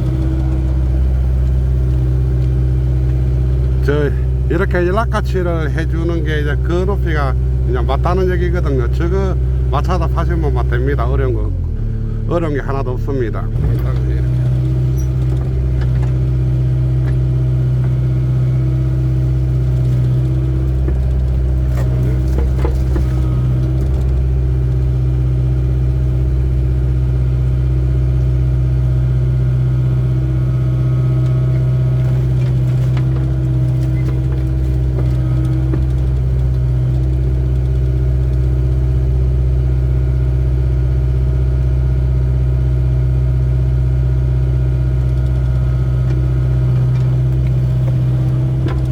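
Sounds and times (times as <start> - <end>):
diesel engine humming: 0.0 - 48.9.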